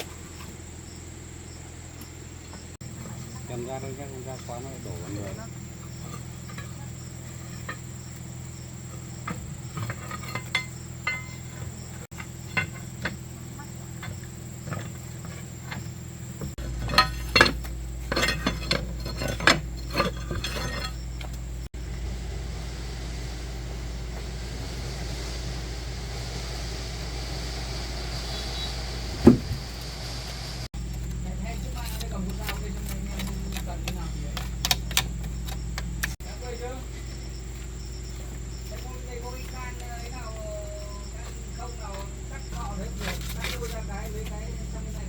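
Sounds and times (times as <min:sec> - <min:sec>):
steady low hum: 0:00.0 - 0:45.0
metal tools clinking: 0:08.8 - 0:21.5, 0:30.8 - 0:36.2, 0:41.9 - 0:45.0
loud knock: 0:29.2 - 0:29.7.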